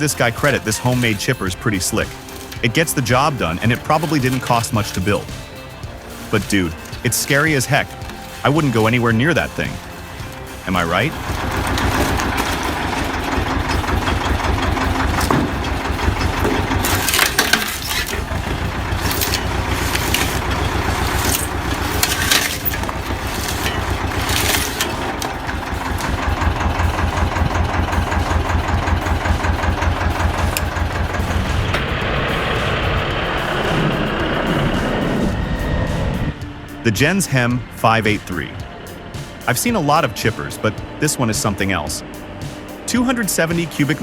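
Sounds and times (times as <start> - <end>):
wood cracking: 0.0 - 34.0
wood crunching: 0.0 - 35.4
wood chipper engine: 0.0 - 44.0.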